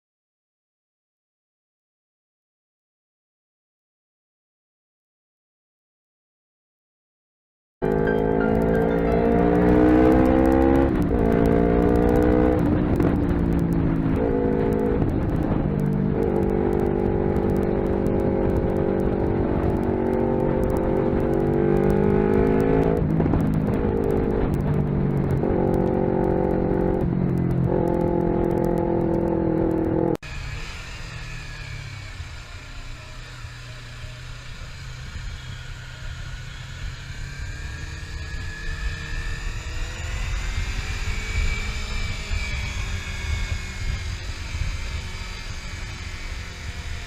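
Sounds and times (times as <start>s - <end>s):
car engine revving through gears: 7.8s - 30.2s, 34.5s - 47.0s
low engine hum: 7.8s - 47.0s.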